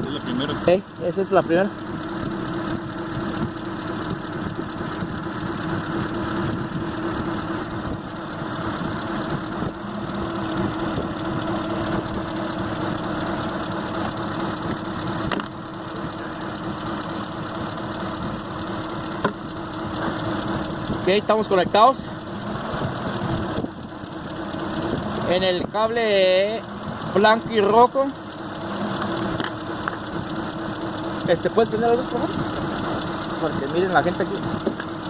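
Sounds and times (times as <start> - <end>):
engine idling with misfire: 0.0 - 35.0.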